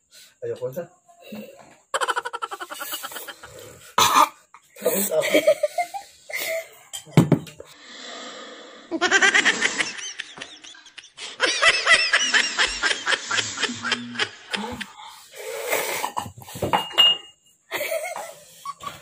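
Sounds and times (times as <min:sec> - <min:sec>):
person laughing hard: 0:02.0 - 0:03.8, 0:05.0 - 0:06.5, 0:08.9 - 0:15.1, 0:17.7 - 0:19.0.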